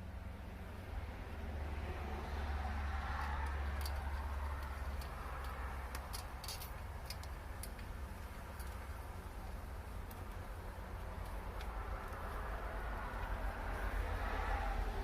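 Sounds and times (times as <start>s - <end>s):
faint small clicks and ticks: 3.1s - 13.8s.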